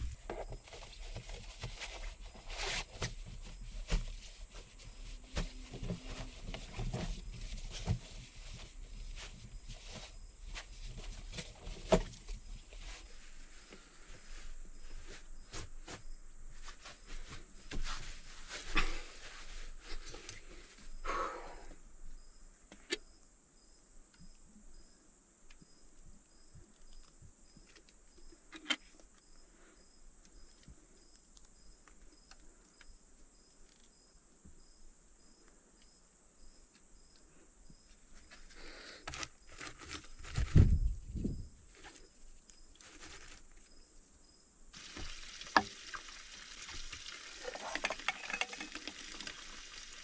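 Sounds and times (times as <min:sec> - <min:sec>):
rustling thump: 0:00.0 - 0:13.1, 0:39.5 - 0:42.0
clicks and rustles: 0:00.1 - 0:13.1, 0:46.7 - 0:49.4
insects trilling: 0:00.2 - 0:13.1.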